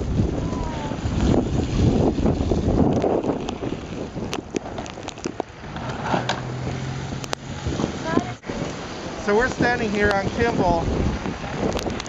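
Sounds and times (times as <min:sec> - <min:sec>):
blizzard wind buffeting microphone: 0:00.0 - 0:12.0
sharp crackles: 0:00.0 - 0:12.0.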